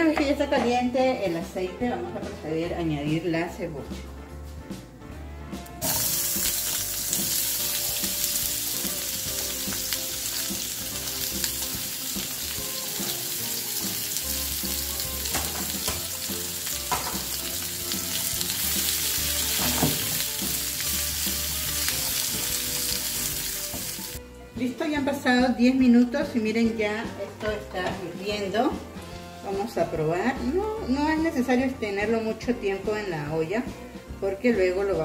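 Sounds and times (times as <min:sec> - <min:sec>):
onion sizzling in hot oil: 0:05.8 - 0:24.2.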